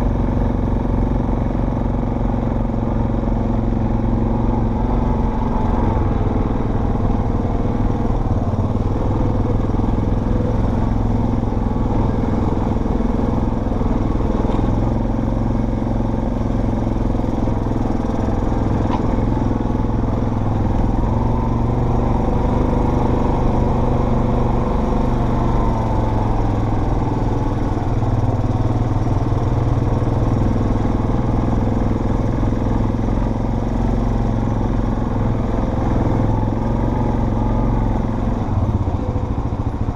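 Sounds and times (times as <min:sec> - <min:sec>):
off-road vehicle engine running: 0:00.0 - 0:39.9
clatter: 0:12.8 - 0:15.0, 0:17.0 - 0:19.8.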